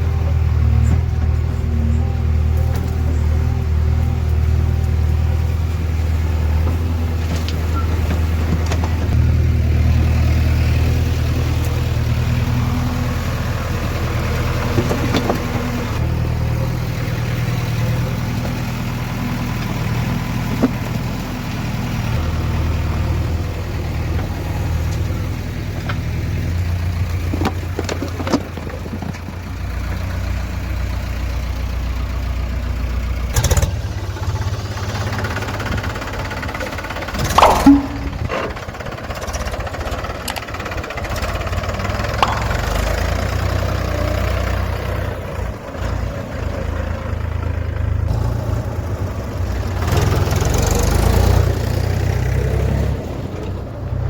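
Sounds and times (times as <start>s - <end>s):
heavy diesel engine running: 0.0s - 54.0s
sharp knocks: 37.2s - 38.6s.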